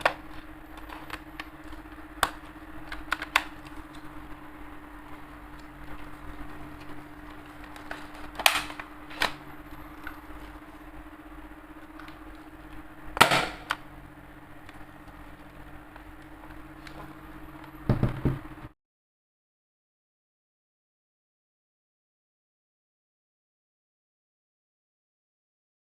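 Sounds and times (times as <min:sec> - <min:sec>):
steady low hum: 0:00.0 - 0:18.8
airsoft rifle mechanical snaps: 0:08.4 - 0:09.4.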